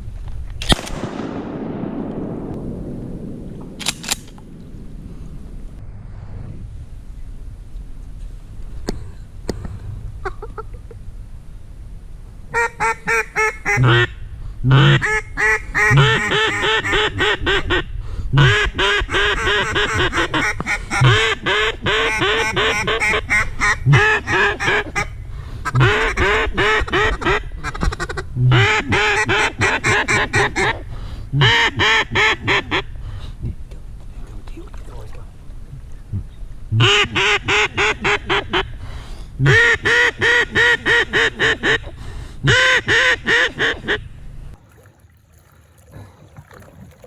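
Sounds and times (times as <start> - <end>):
duck call quacks: 12.5 - 30.8, 31.4 - 32.9, 36.8 - 38.8, 39.4 - 44.1.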